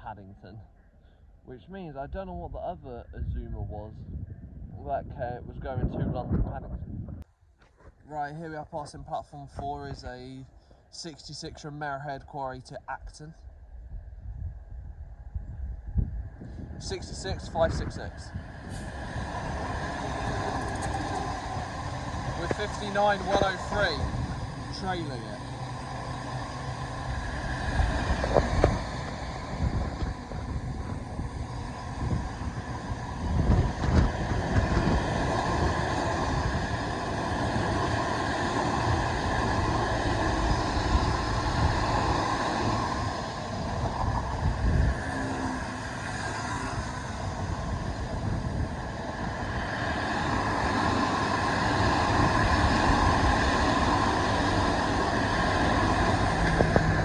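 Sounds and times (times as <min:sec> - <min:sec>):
freight wagons rumbling and clattering: 0:17.4 - 0:38.2, 0:52.2 - 0:57.0.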